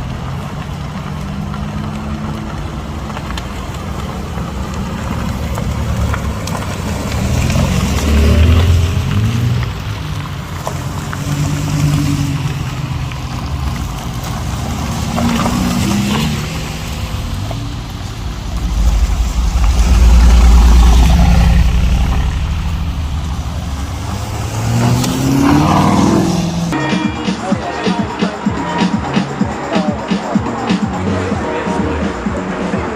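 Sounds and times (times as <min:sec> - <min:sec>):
car engines revving: 0:00.0 - 0:26.8
loud low rumble: 0:17.0 - 0:26.8.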